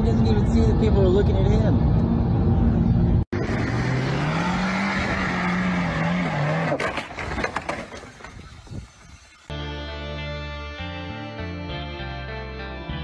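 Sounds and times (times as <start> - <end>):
car engine revving: 3.3 - 6.8
wheels spinning in mud: 3.4 - 9.5.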